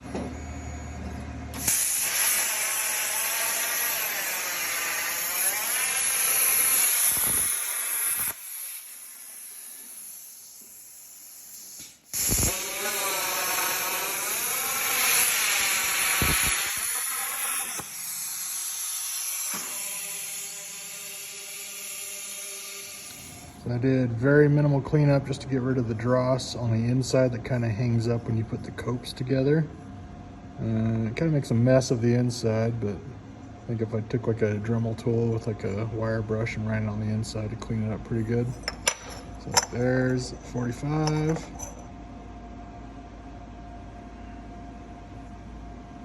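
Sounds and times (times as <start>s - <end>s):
plasma torch hissing arc: 1.5s - 23.6s.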